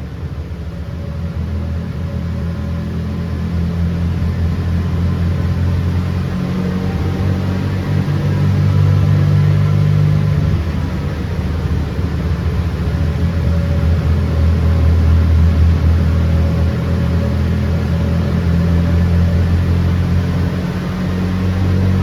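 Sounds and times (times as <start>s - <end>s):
car engine with deep exhaust: 0.0s - 22.0s.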